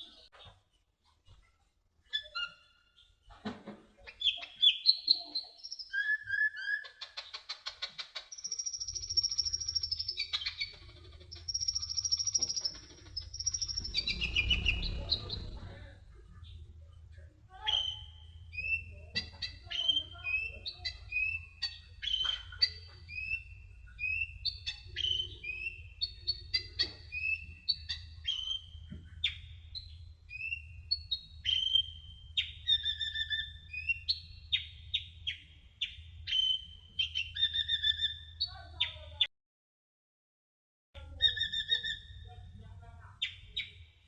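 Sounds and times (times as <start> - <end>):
bird singing high chirps: 2.0 - 3.3, 4.1 - 15.8, 17.6 - 39.0, 41.1 - 42.4
steady low hum: 12.7 - 19.1.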